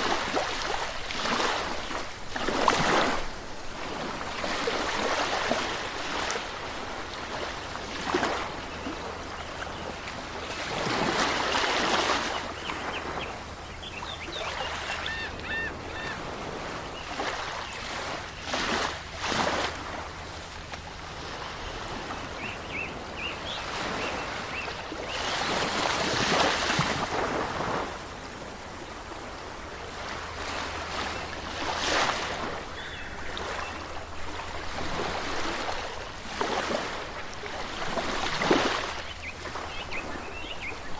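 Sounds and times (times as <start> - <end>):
waves washing onto shore: 0.0 - 40.9
faint bird chirps: 12.3 - 16.2, 32.7 - 33.9.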